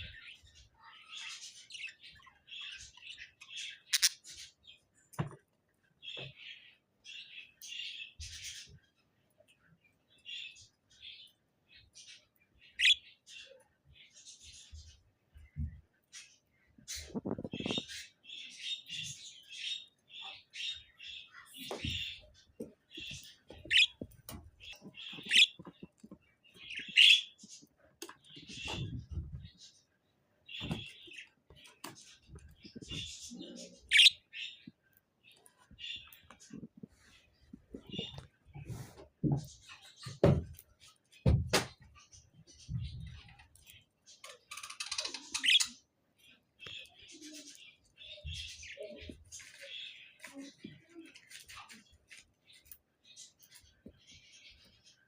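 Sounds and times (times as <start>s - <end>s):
soft bird chatter and clicks: 0.0s - 55.0s
budgerigar chirping: 3.9s - 4.2s, 12.8s - 13.0s, 23.7s - 24.1s, 25.0s - 25.7s, 33.9s - 34.3s.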